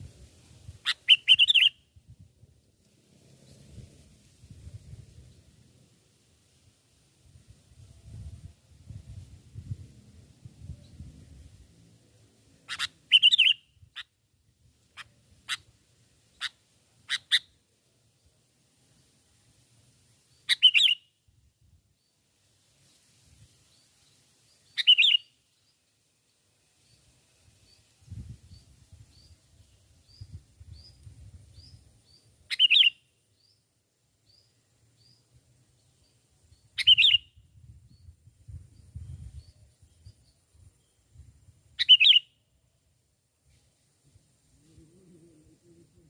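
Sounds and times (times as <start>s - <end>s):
faint high chirps: 34.2s - 42.5s.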